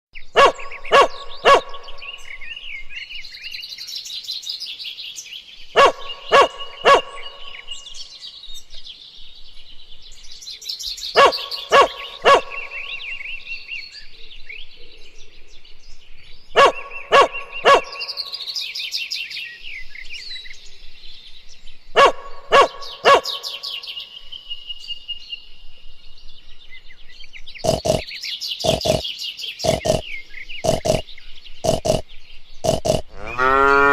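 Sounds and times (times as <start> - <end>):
birds chirping: 0.2 - 33.9
dog barking: 0.4 - 1.9, 5.8 - 7.4, 11.2 - 12.8, 16.6 - 18.1, 22.0 - 23.6.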